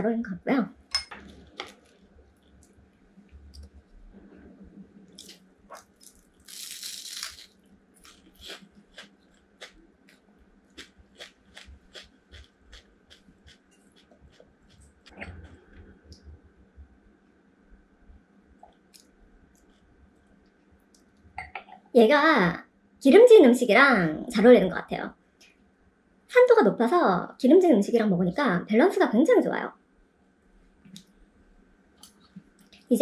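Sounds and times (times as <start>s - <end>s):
crisp chewing crunches: 5.1s - 15.8s
crunchy bite: 5.2s - 15.7s.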